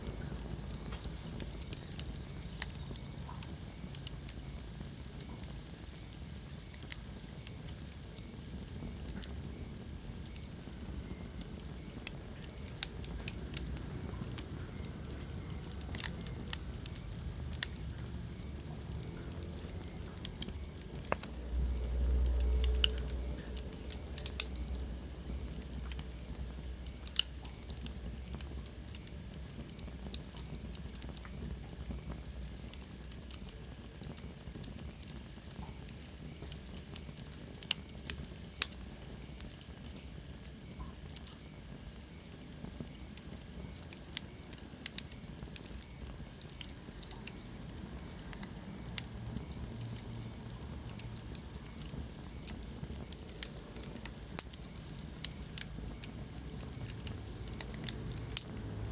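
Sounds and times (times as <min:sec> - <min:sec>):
fire crackling and popping: 0:00.0 - 0:58.9
low flame noise: 0:00.0 - 0:58.9.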